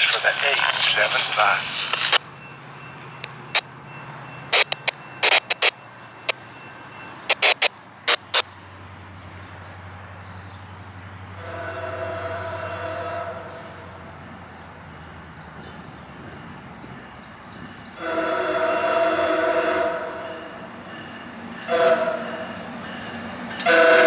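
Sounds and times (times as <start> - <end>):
train drone: 0.0 - 24.0
sharp clicks: 4.5 - 6.4.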